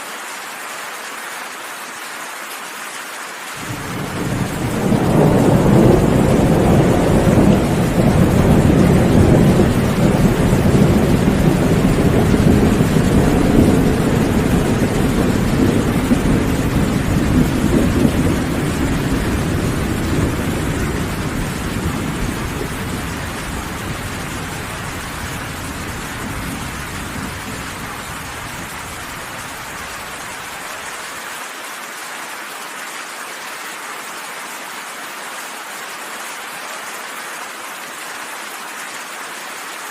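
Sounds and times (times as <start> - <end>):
heavy rain: 0.0 - 39.9
low rolling thunder: 3.6 - 30.5.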